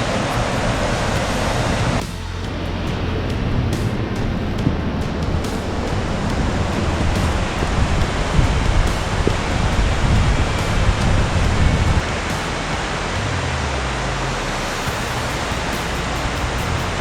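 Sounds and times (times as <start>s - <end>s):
water rushing: 0.0s - 17.0s
wind buffeting microphone: 2.8s - 13.3s.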